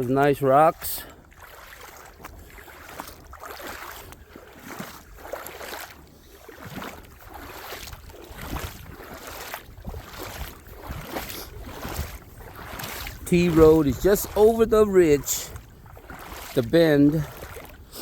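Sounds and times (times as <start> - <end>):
footsteps on rocks and gravel: 1.6 - 18.0
wind rumble on microphone: 6.0 - 18.0.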